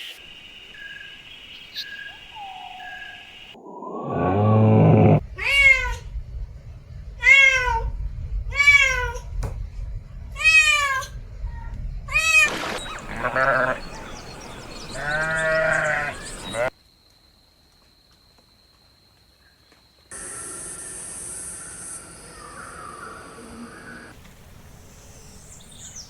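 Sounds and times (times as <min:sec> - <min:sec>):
low animal call: 0:03.6 - 0:06.0, 0:10.6 - 0:16.7
low bleating call: 0:13.0 - 0:13.9, 0:15.0 - 0:16.7.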